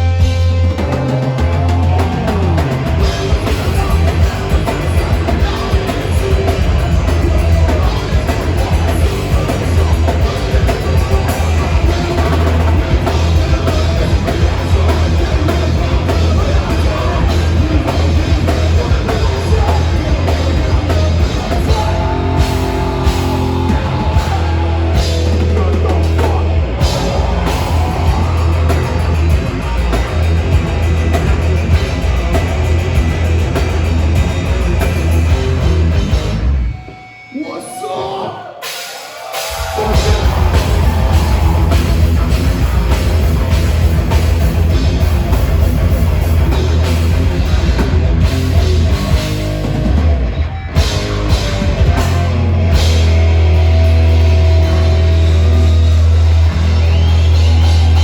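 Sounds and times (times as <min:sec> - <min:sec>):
heavy metal band playing live: 0:00.0 - 0:58.0.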